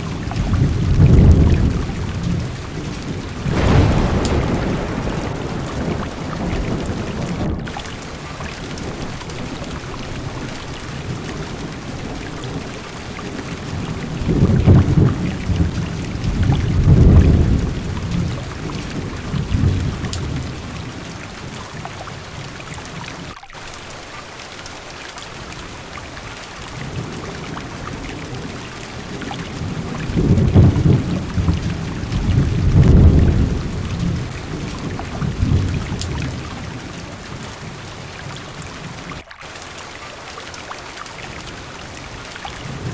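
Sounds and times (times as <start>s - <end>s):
thunder rumbling: 0.0s - 21.5s, 26.8s - 38.1s
heavy rain on car windows: 0.0s - 42.9s.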